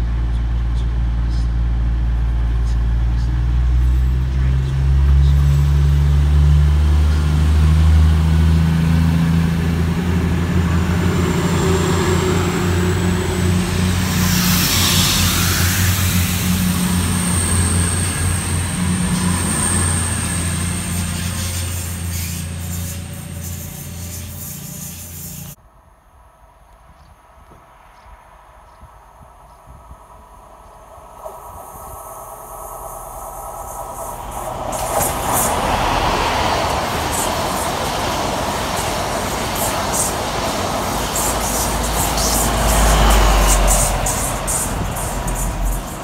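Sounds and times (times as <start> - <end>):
wheels hissing on rail: 0.0 - 25.6, 29.6 - 46.0
diesel engines low drone: 0.0 - 46.0
thin high whine: 10.5 - 26.0.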